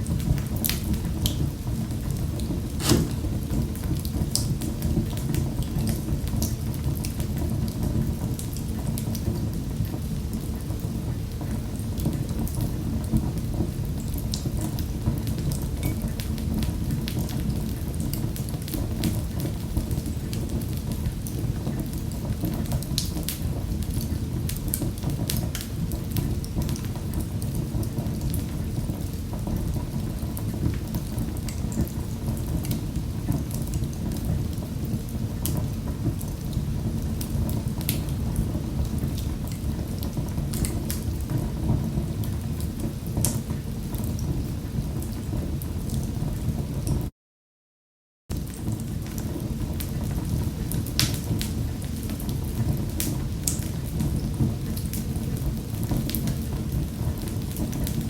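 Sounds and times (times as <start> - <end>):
wood fire crackling: 0.0 - 10.4, 48.5 - 58.0.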